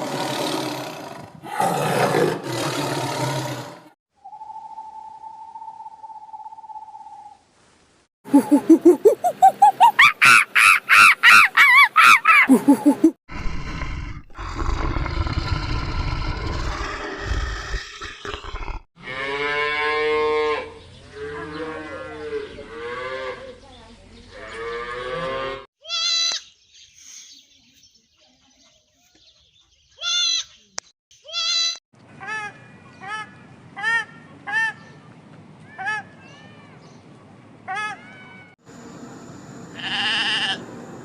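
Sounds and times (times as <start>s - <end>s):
pulsed animal calls: 8.3s - 13.1s
cow mooing: 19.0s - 23.5s
short bleats: 39.8s - 40.6s.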